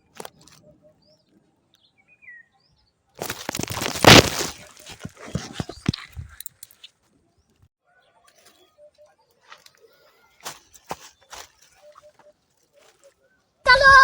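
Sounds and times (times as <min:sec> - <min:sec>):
leafy branches crashing down: 0:03.2 - 0:05.2
branches snapping: 0:03.2 - 0:06.7, 0:10.4 - 0:13.1
bird chirping: 0:05.6 - 0:13.5.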